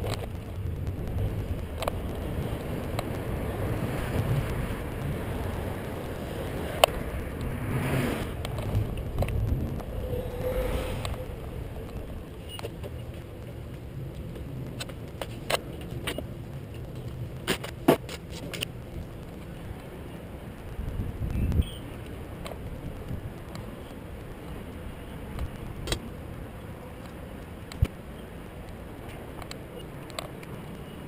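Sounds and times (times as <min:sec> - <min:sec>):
sharp clicks and rattles: 0:00.0 - 0:07.6, 0:08.3 - 0:23.7
wind rumble: 0:00.0 - 0:30.6
road noise: 0:00.0 - 0:31.0.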